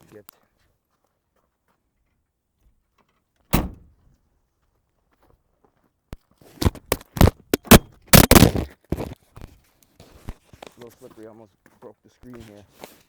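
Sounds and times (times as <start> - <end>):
car door shutting: 3.5 - 3.9
footsteps crunching on icy snow: 6.6 - 9.2.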